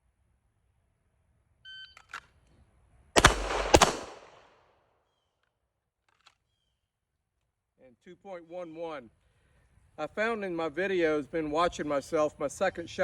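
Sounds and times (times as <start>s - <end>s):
pistol shots: 3.2s - 4.6s.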